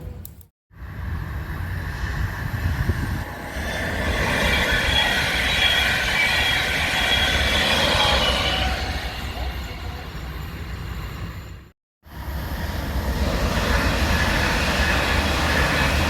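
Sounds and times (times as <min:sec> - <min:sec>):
rail vehicle rumbling on track: 0:00.0 - 0:16.0
high wheel squeal: 0:03.2 - 0:11.7.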